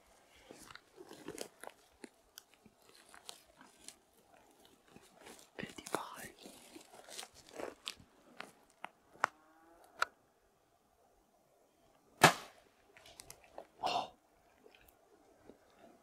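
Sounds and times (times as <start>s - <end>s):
arrow thump: 12.2s - 12.6s.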